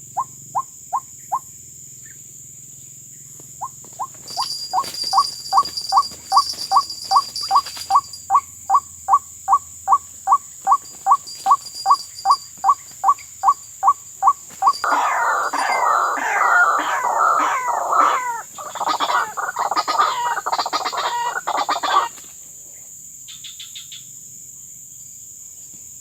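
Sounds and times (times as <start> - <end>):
bird calling rising note: 14.6 - 22.0.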